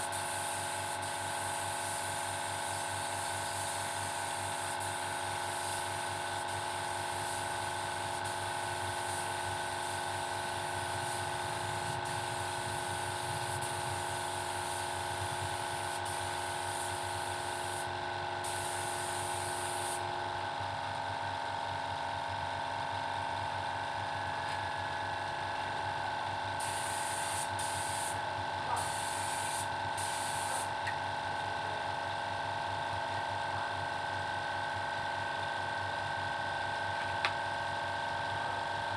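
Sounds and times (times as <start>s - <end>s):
paint spray gun hissing: 0.0s - 20.0s, 26.6s - 30.8s
air compressor running: 0.0s - 38.9s.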